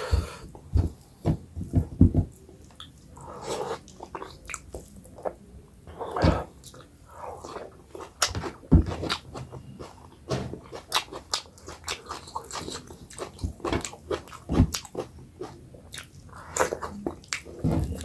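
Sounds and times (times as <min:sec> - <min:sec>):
person chewing and lip-smacking: 0:07.4 - 0:18.0.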